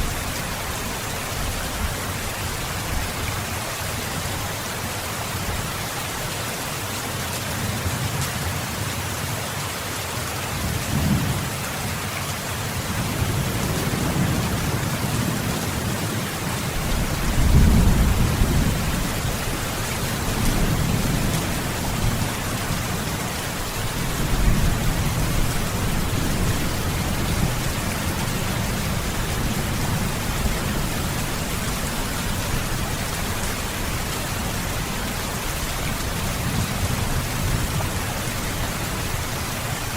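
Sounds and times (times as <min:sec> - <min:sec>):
heavy rain: 0:00.0 - 0:39.9
rolling thunder: 0:16.8 - 0:22.7.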